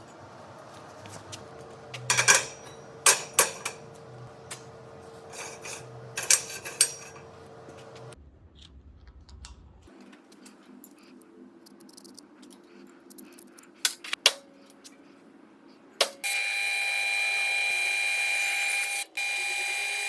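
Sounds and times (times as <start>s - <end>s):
light metal clinks and knocks: 0.0s - 4.7s.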